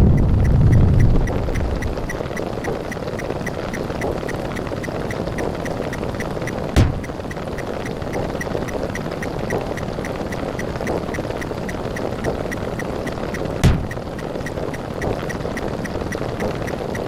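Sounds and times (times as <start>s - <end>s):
sharp low thump: 6.8s - 7.2s, 13.6s - 14.1s
short repeating pip: 6.8s - 7.2s.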